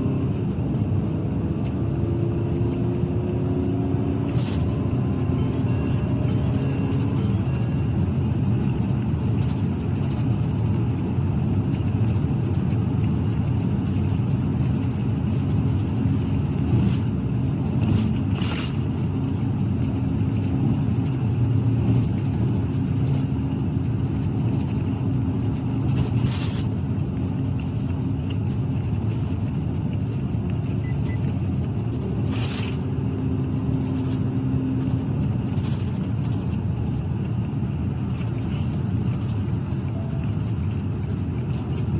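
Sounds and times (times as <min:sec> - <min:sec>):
car engine and road noise: 0:00.0 - 0:41.9
short clicks and rattles: 0:11.7 - 0:37.5.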